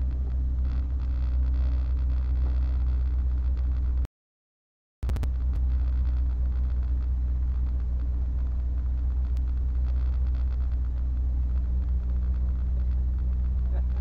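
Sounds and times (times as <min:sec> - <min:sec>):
car engine idling: 0:00.0 - 0:04.0, 0:05.1 - 0:14.0.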